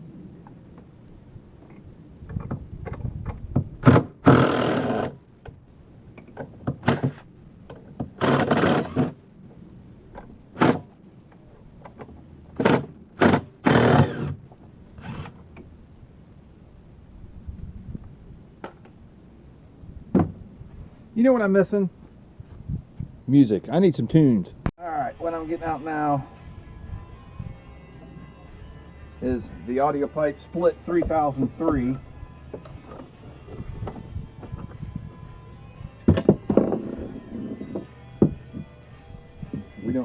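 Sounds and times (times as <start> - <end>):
parts and tools thunking: 36.0 - 38.7.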